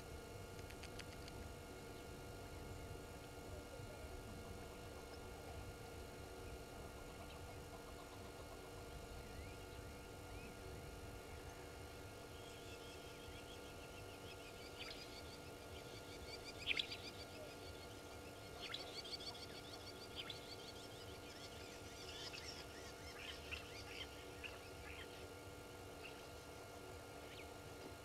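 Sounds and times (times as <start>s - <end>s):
faint steady hum: 0.0s - 28.0s
birds chirping and trilling: 12.3s - 25.2s, 26.0s - 26.6s.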